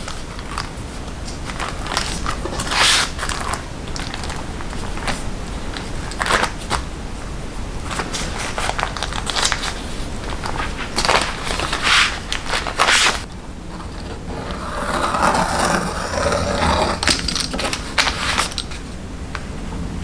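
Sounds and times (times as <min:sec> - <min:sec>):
crisp crunches and crinkles: 0:00.0 - 0:06.8, 0:07.9 - 0:13.3.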